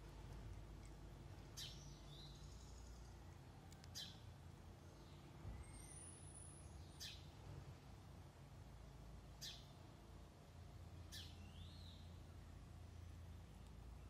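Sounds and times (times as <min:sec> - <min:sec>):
small bird chips: 0:00.0 - 0:04.3
thin whistled bird notes: 0:01.5 - 0:07.3.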